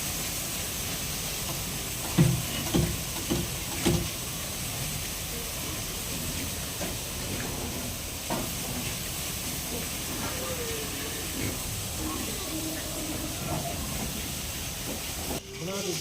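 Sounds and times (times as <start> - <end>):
steady hiss: 0.0 - 16.0
pigs grunting: 9.6 - 14.3.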